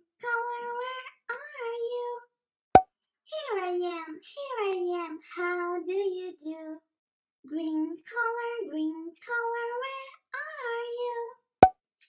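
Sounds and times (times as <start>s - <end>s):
child-like voice singing: 0.0s - 2.2s, 3.3s - 6.8s, 7.5s - 11.4s.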